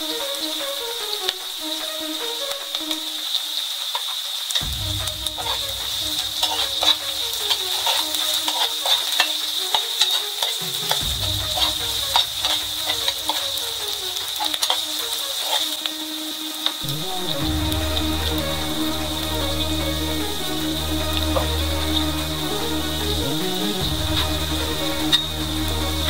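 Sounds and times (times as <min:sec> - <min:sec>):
vegetables sizzling in oil: 0:00.0 - 0:26.0
metal spatula scraping pan: 0:05.4 - 0:15.8.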